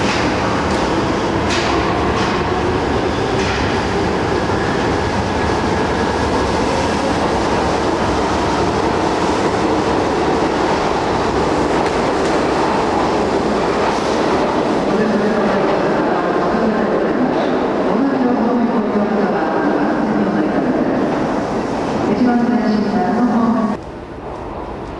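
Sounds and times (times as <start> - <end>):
subway train rumbling: 0.0 - 24.9.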